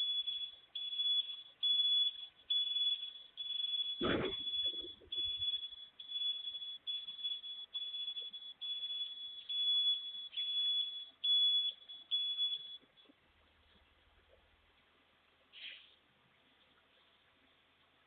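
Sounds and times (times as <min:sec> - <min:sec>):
reversing alarm beeping: 0:00.0 - 0:13.1.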